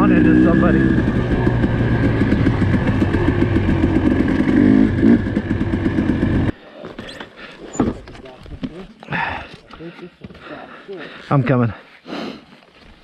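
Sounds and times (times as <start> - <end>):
dirt bike engine running: 0.0 - 6.6.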